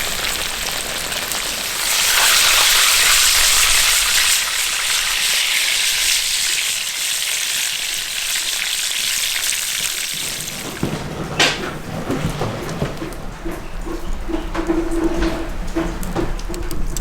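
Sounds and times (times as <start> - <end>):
food sizzling in hot fat: 0.0 - 10.2.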